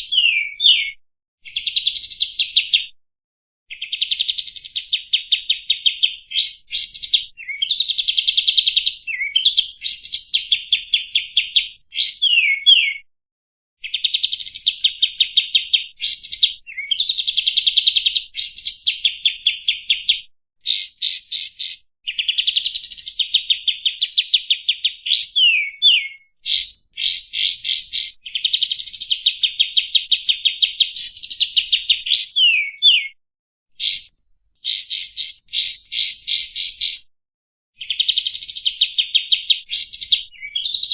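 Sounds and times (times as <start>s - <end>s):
bird singing rattling notes: 33.8s - 37.0s.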